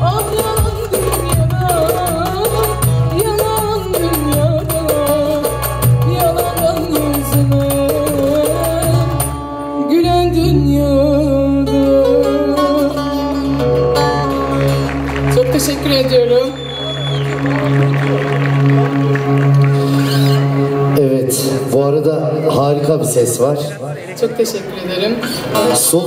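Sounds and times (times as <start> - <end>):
band with steady beat: 0.0 - 9.5.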